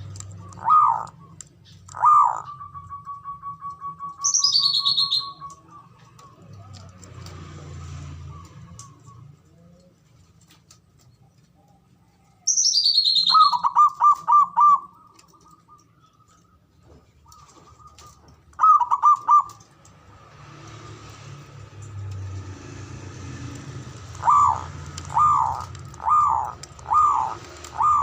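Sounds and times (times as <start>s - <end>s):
dove stuttering coo: 0.0s - 1.3s, 1.9s - 2.8s, 13.3s - 15.7s, 17.2s - 19.7s, 22.5s - 28.0s
dove trilling: 0.0s - 6.8s, 12.5s - 16.6s, 17.2s - 19.7s, 23.7s - 28.0s
high falling chirp: 2.0s - 5.9s, 12.5s - 16.4s.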